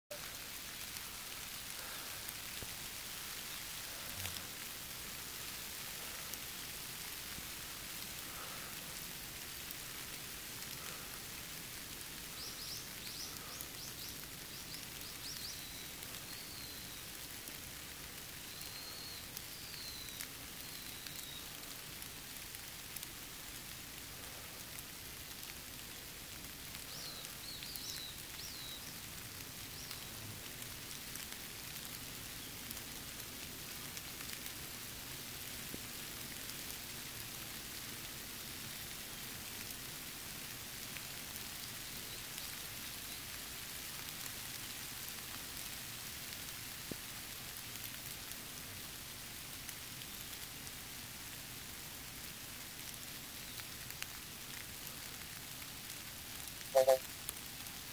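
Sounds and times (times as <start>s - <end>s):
steady rain with drops tapping: 0.0s - 57.9s
bird chirping: 56.8s - 57.0s.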